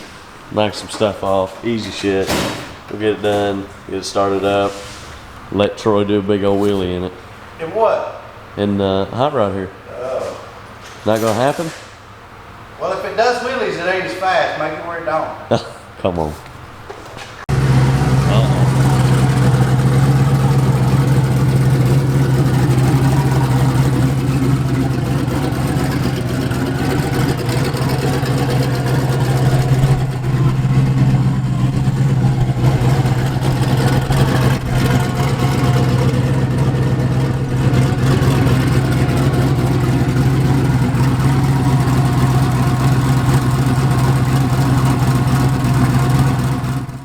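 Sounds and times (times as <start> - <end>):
vehicle engine running steadily: 17.5 - 47.0.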